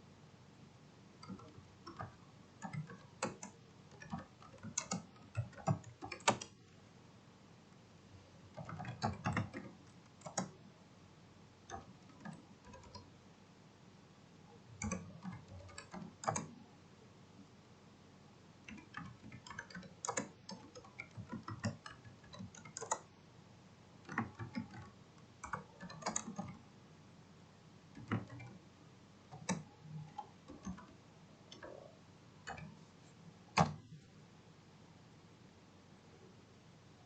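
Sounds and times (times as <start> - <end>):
computer clicks and taps: 1.2 - 6.6, 8.5 - 10.6, 11.6 - 13.1, 14.7 - 16.6, 18.6 - 23.1, 24.0 - 26.6, 27.9 - 28.6, 29.3 - 32.8, 33.5 - 34.0.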